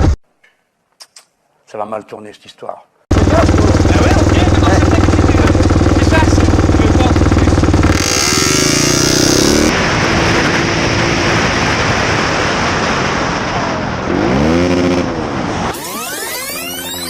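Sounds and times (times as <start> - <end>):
motorcycle engine revving: 3.1 - 17.0
wind noise on microphone: 9.7 - 15.4.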